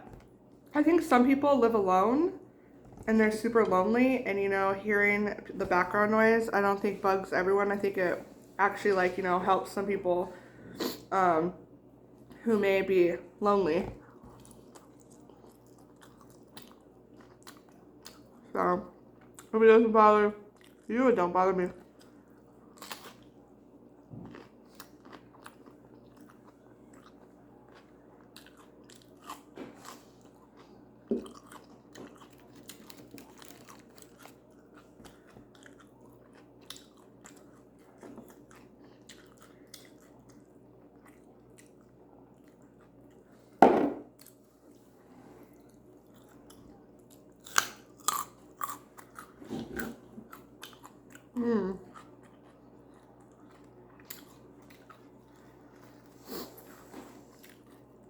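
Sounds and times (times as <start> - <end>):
chewing and crunching food: 13.9 - 19.6, 20.4 - 58.0.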